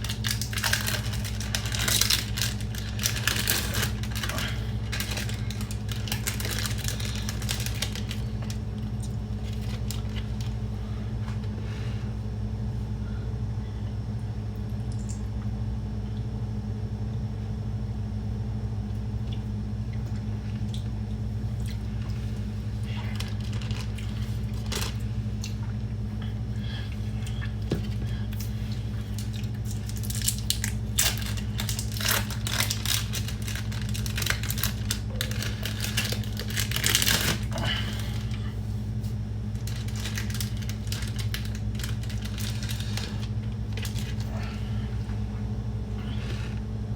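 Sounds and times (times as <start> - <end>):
rustling and crinkling: 0.0 - 11.9, 21.5 - 46.7
steady low hum: 0.0 - 46.9.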